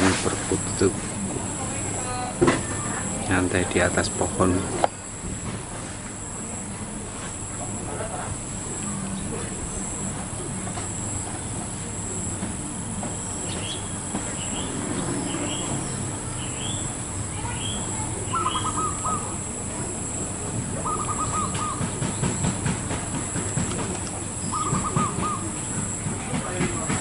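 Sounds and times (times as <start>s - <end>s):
bird high chirps: 17.5s - 19.4s, 20.8s - 21.8s, 24.4s - 25.5s
dove stuttering coo: 18.3s - 19.6s, 20.7s - 22.6s, 23.5s - 26.0s.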